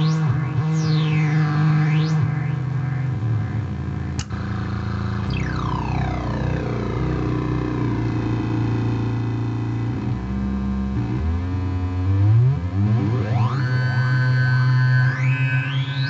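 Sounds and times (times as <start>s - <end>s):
falling pitch glides: 0.0s - 8.6s
rising pitch sweep: 0.0s - 10.2s
oscillator noise box droning: 0.0s - 16.0s.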